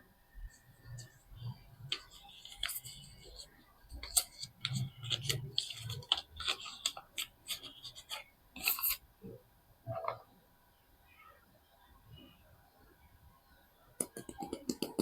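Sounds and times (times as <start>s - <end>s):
packaging crinkling and scratching: 1.8s - 9.0s.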